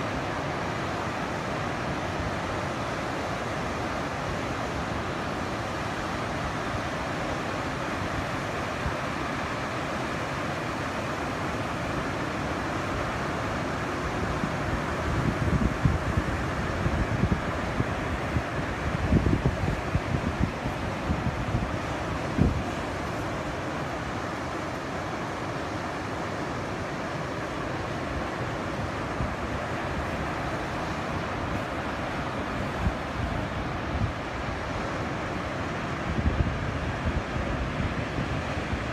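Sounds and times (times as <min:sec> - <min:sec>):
ocean surf breaking: 0:00.0 - 0:38.9
wind buffeting microphone: 0:14.2 - 0:24.4, 0:28.8 - 0:38.9.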